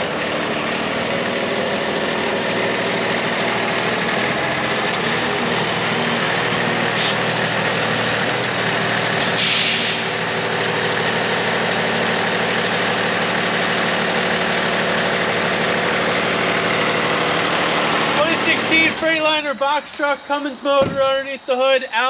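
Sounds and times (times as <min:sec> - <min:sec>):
diesel engine idling: 0:00.0 - 0:22.0
compressed-air hiss: 0:09.2 - 0:10.2.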